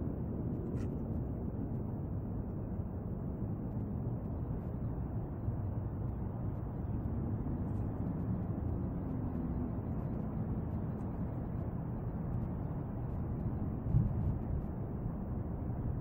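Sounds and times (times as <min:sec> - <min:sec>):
faint hum: 0:00.0 - 0:16.0
low outdoor rumble: 0:00.0 - 0:16.0.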